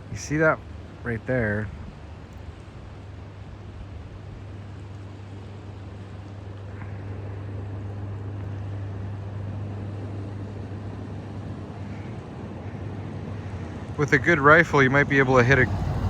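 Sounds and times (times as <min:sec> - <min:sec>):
low engine drone: 0:04.5 - 0:16.0.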